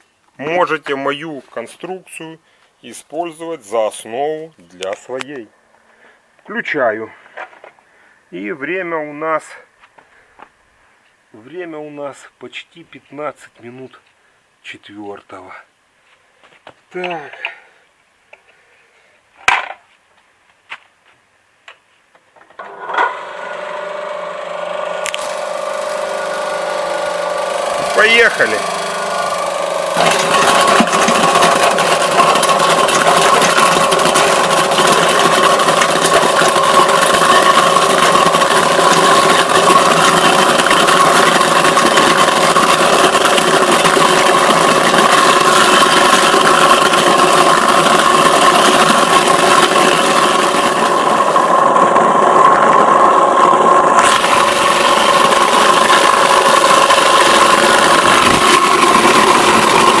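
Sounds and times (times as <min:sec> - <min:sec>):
apples clattering and shredding: 0:22.6 - 0:53.0, 0:54.0 - 1:00.0
electric motor humming: 0:22.6 - 1:00.0.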